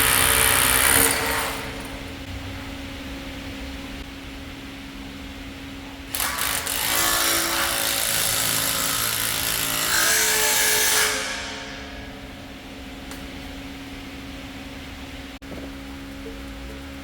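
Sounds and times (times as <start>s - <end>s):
power tool running: 0.0s - 2.3s, 6.1s - 12.6s.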